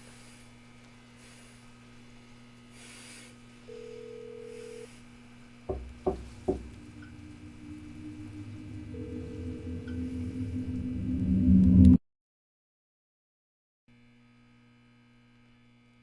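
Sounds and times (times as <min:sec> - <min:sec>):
low steady hum: 0:03.5 - 0:12.0
loud sharp knocks: 0:05.7 - 0:07.3
low drone: 0:05.7 - 0:12.0.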